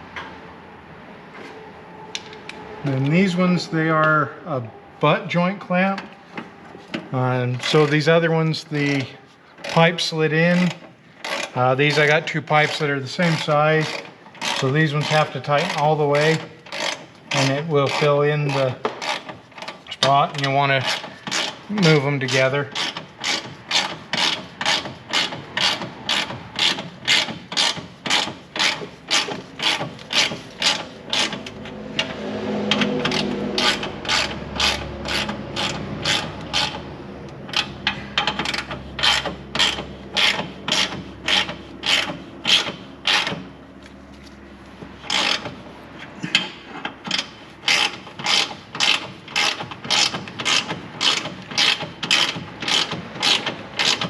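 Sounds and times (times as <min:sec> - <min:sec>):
ratchet wrench clicking: 0:13.4 - 0:20.0, 0:20.8 - 0:22.0, 0:22.7 - 0:43.5, 0:45.0 - 0:45.6, 0:46.3 - 0:54.0.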